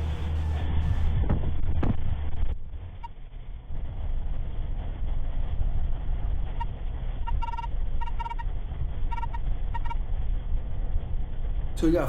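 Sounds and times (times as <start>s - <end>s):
vehicle rumble: 0.0s - 12.0s
short beeps: 7.3s - 8.4s, 9.1s - 10.0s.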